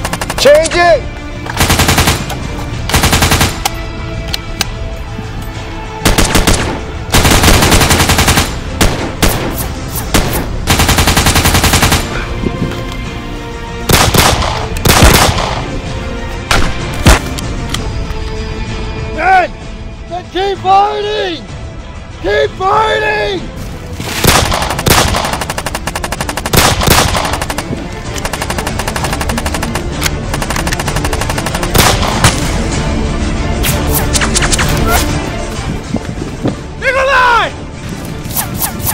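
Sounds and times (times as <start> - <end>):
background music: 0.0 - 38.9
automatic rifle fire: 6.1 - 9.5, 13.9 - 15.6, 24.2 - 27.6, 28.2 - 32.4.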